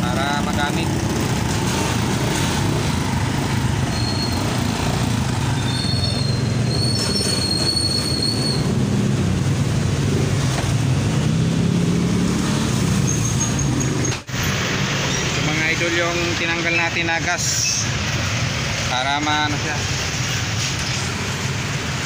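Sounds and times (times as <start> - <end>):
thin high squeal: 3.9 - 4.5, 5.6 - 8.7.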